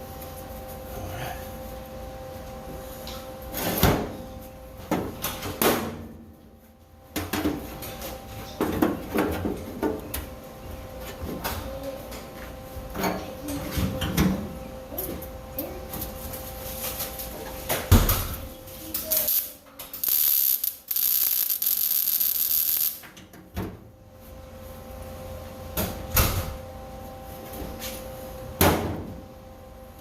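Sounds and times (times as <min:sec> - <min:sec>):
welding arc crackling: 0:18.9 - 0:23.1.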